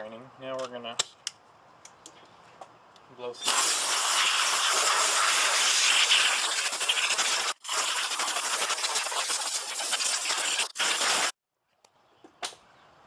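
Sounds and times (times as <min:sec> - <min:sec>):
compressed air blow gun hissing: 0:03.4 - 0:11.4.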